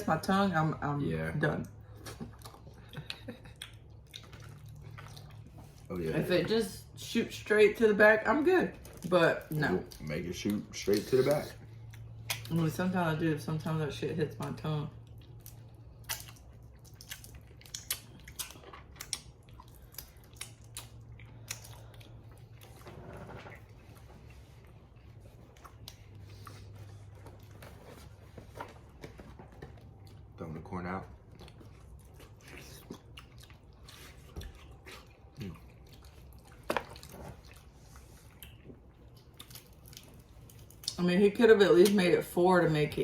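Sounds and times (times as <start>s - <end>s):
wet chewing and lip smacking: 1.6s - 6.0s, 8.8s - 12.6s, 15.0s - 27.8s, 31.1s - 41.1s.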